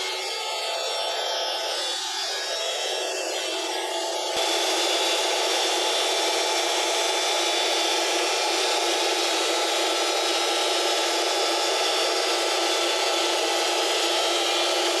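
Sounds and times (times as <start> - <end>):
band saw cutting log: 3.3 - 15.0.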